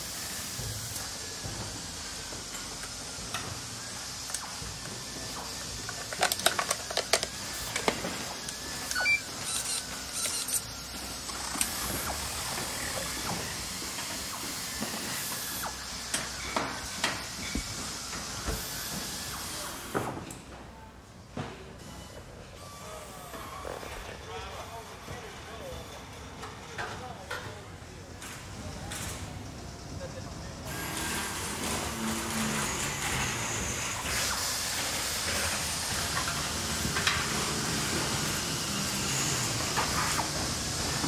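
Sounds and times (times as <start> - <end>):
steering servo whirring: 3.9 - 19.7.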